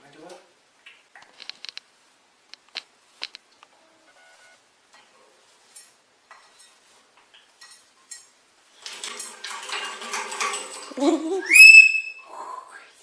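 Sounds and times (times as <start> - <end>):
dishes clinking: 7.6 - 11.5.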